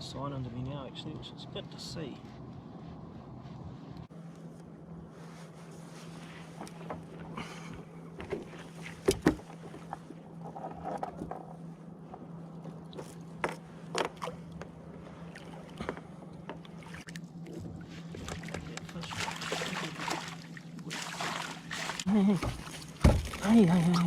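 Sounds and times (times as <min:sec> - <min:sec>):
steady low hum: 0:00.0 - 0:24.0
water lapping at hull: 0:05.1 - 0:24.0.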